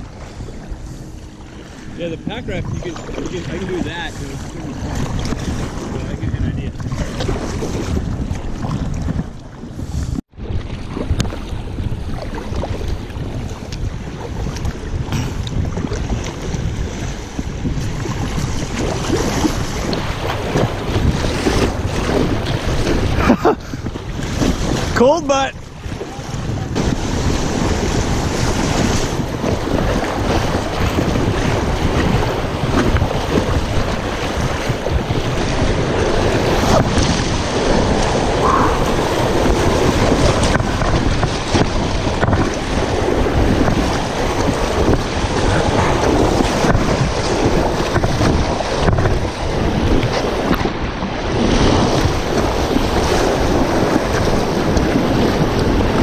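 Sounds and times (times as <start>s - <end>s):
wind buffeting microphone: 0.0s - 56.0s
rushing whitewater roar: 30.8s - 56.0s.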